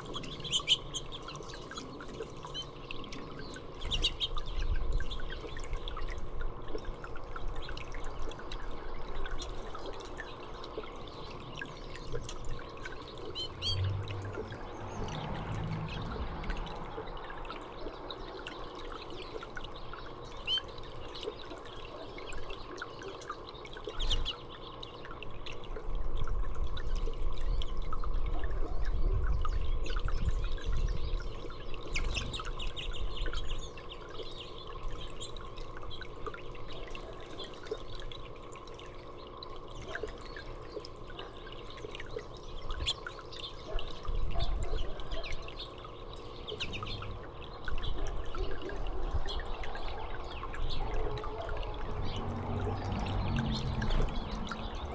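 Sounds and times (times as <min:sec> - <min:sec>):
songbirds chirping: 0:00.0 - 0:25.7, 0:27.4 - 0:54.9
water trickling: 0:00.0 - 0:54.9
low rumble: 0:51.6 - 0:54.9.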